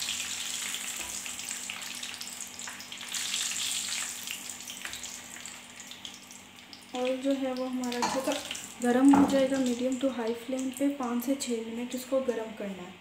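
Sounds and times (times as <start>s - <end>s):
food deep-frying in hot oil: 0.0s - 12.0s
spoon stirring through oil: 7.9s - 9.8s.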